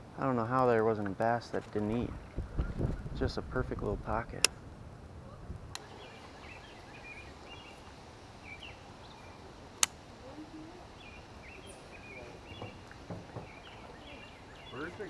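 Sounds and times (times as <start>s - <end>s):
faint outdoor background: 0.0s - 15.0s
birds chirping: 5.8s - 15.0s.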